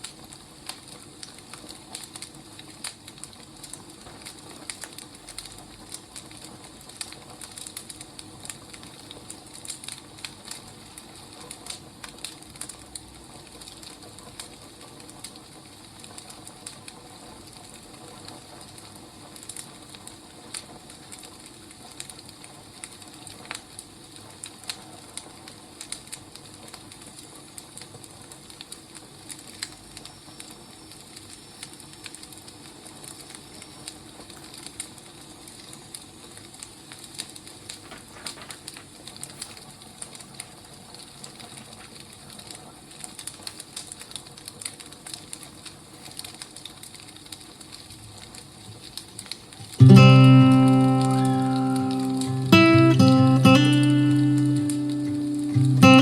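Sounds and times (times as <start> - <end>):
wood fire crackling: 0.0 - 56.0
low hiss: 49.6 - 56.0.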